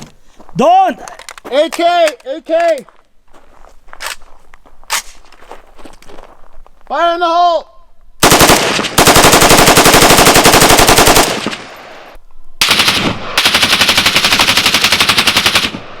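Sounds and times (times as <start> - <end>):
automatic rifle bursts: 8.2 - 11.7.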